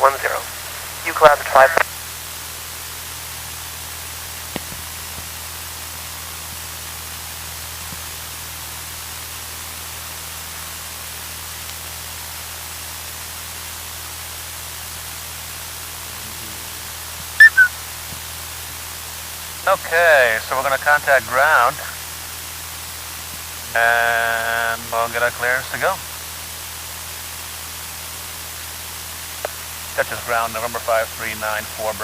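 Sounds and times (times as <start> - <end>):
radio intercom hiss and hum: 0.0 - 1.9, 23.7 - 26.0
short loud blips: 17.4 - 17.7.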